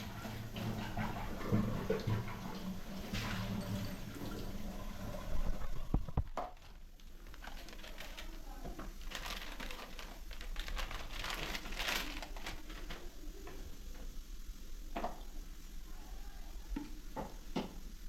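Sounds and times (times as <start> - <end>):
plastic crinkling and rustling: 5.4 - 13.6.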